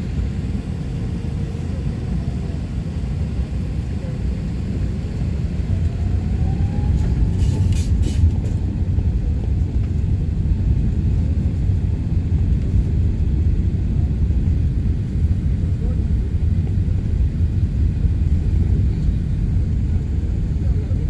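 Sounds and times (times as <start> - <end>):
airliner engines rumbling: 0.0 - 21.0.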